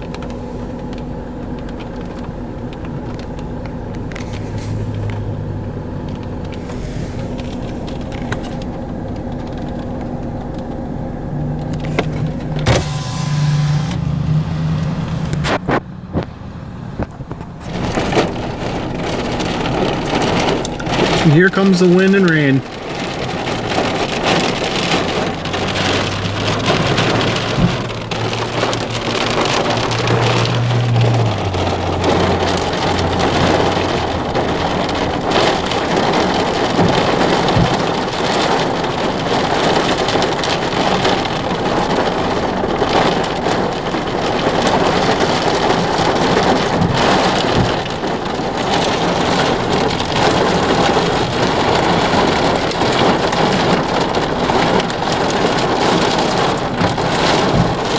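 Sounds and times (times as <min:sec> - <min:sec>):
heavy rain pelting a car: 0:00.0 - 0:57.9.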